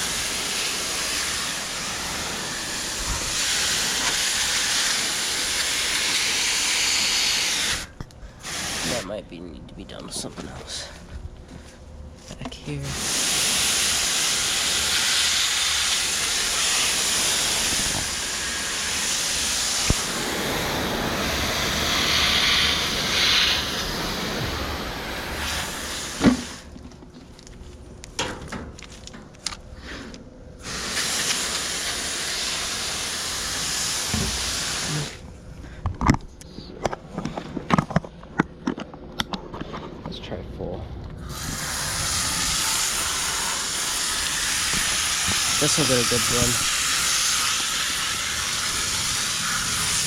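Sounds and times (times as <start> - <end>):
hose spraying water on metal coils: 0.0 - 9.0, 12.9 - 26.7, 30.6 - 35.2, 41.3 - 50.0.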